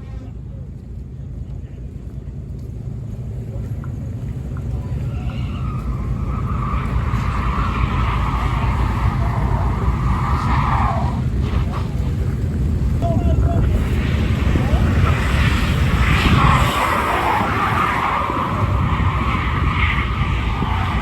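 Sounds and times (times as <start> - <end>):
truck engine rumble: 0.0 - 21.0
tyres squealing: 4.5 - 12.4.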